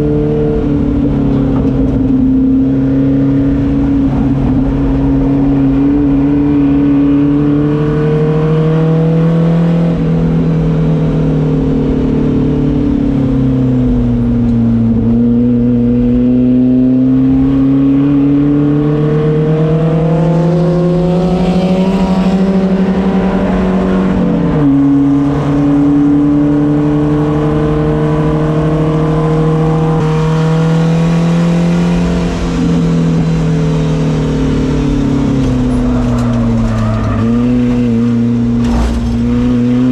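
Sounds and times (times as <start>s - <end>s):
race car engine revving: 14.8s - 39.9s.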